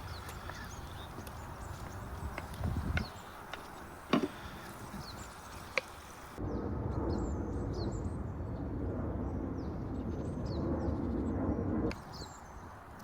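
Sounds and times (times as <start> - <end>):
small birds chirping: 0.0 - 6.4, 11.9 - 13.0.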